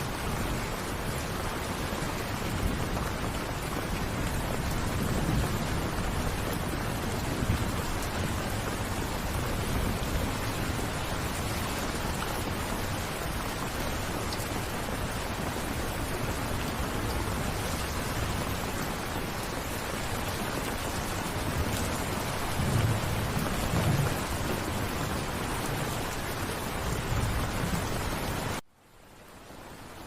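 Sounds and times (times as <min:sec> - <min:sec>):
heavy rain: 0:00.0 - 0:30.0
thunder rumbles: 0:00.1 - 0:13.8, 0:20.2 - 0:28.6.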